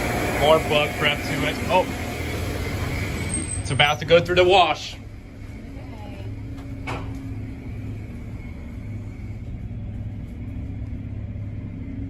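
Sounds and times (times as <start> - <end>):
car wash machinery hum: 0.0 - 12.0.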